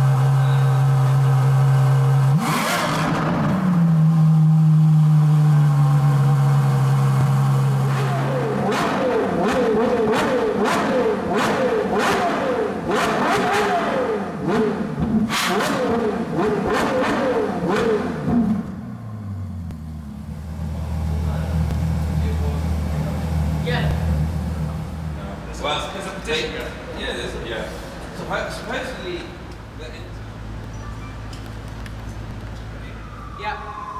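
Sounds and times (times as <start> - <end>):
sports car engine revving: 0.0 - 25.8
exhaust cracks: 7.1 - 26.0.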